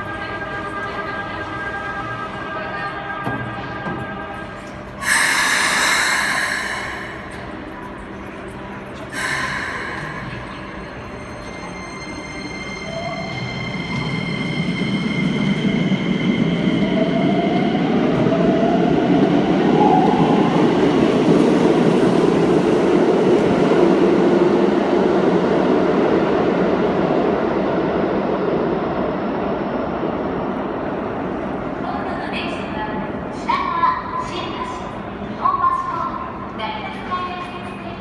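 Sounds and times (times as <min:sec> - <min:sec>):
train running rumble: 0:01.0 - 0:12.5.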